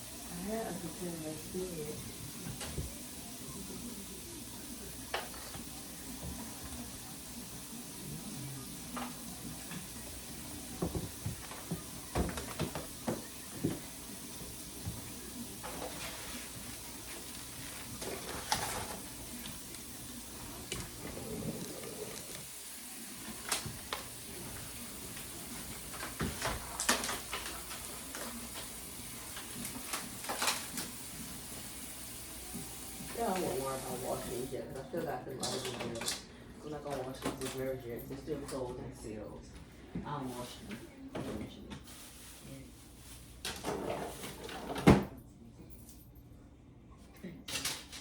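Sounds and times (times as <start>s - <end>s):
steady hiss: 0.0s - 34.6s
packages and containers clattering: 15.6s - 19.4s.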